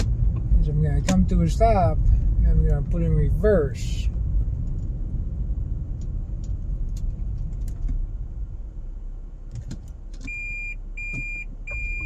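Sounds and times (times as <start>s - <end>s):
low rumble inside car: 0.0s - 12.0s
reverse warning beeps: 10.3s - 12.0s.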